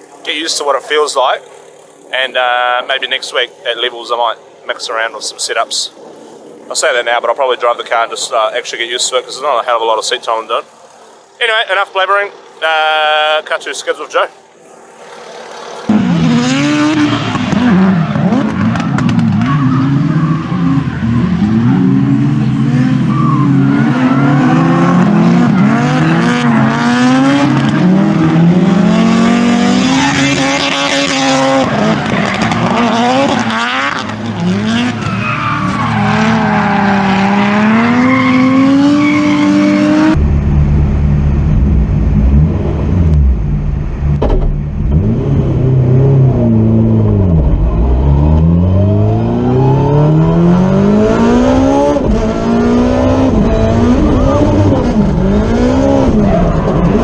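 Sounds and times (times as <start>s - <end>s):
tyres skidding: 5.9s - 57.0s
car engine revving hard: 15.1s - 40.2s, 44.8s - 57.0s.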